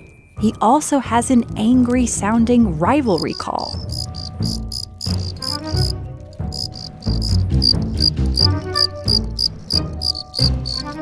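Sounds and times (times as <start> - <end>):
background music: 0.0 - 11.0
cricket chirping: 3.2 - 11.0.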